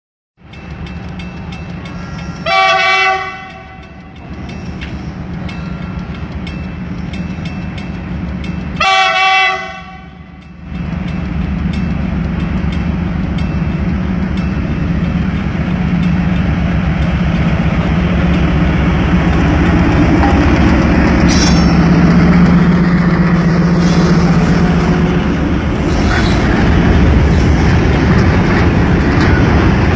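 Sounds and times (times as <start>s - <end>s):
locomotive engine rumble: 0.4s - 29.9s
train horn blast: 2.4s - 4.0s, 8.8s - 10.4s.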